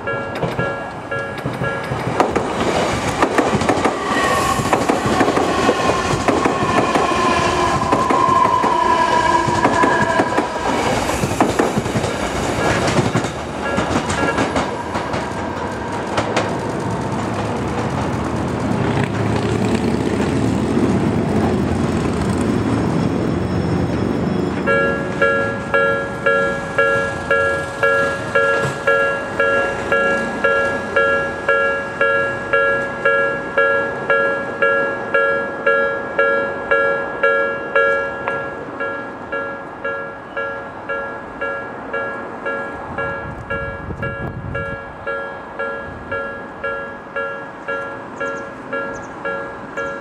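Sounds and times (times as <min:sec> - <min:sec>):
high tone: 0:00.0 - 0:02.0, 0:12.1 - 0:15.9, 0:24.6 - 0:50.0
train wheels clattering: 0:00.2 - 0:20.4.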